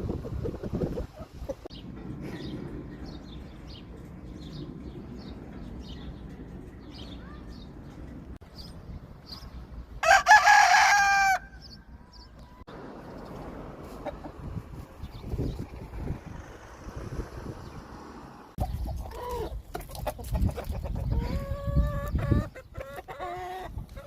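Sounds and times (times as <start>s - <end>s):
wind noise rumble: 0.0s - 10.1s, 11.8s - 22.8s
small birds chirping: 0.3s - 9.9s, 11.5s - 24.0s
rooster crowing: 10.0s - 11.6s.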